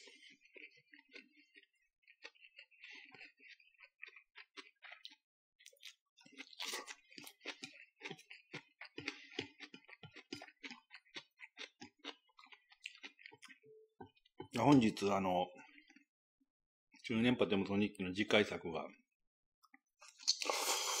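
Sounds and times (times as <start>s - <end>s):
man chewing noodles: 0.0s - 14.7s, 15.5s - 16.1s, 19.7s - 21.0s
wet clicks from mouth and chopsticks: 19.7s - 20.6s.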